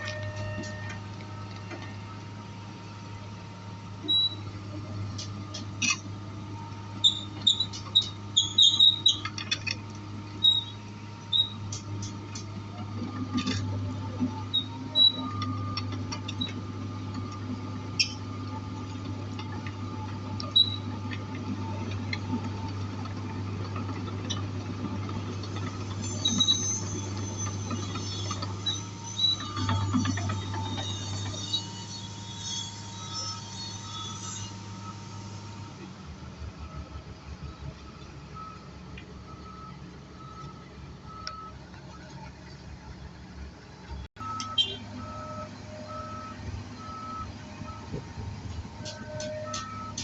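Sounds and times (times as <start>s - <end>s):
sharp squeaks and clicks: 0.0s - 1.9s, 4.0s - 4.5s, 7.0s - 9.8s, 10.4s - 12.5s, 14.4s - 17.4s, 18.0s - 18.3s, 20.4s - 21.2s, 25.6s - 35.3s, 43.9s - 46.0s, 48.8s - 50.0s
excavator diesel engine running: 0.0s - 50.0s.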